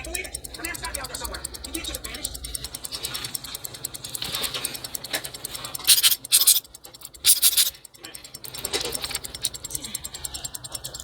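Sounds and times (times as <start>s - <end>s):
watch mechanism clicking: 0.0s - 11.0s
rasping bursts: 0.4s - 7.9s.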